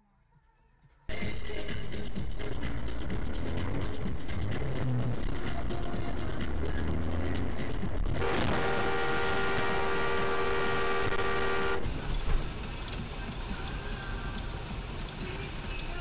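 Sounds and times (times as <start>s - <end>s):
road and engine noise: 4.2s - 16.0s
car horn blast: 8.2s - 12.0s
traffic noise: 8.2s - 16.0s.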